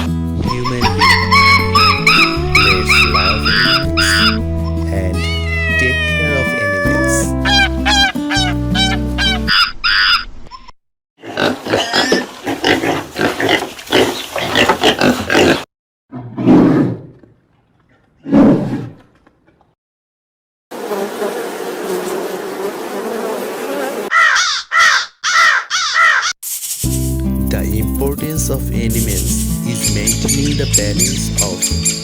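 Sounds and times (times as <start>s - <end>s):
animal calls: 0.5s - 4.4s, 5.2s - 10.2s, 24.1s - 26.4s
deep grunting or roaring calls: 0.5s - 4.4s
cawing: 0.8s - 4.4s, 5.5s - 10.2s, 24.1s - 26.4s.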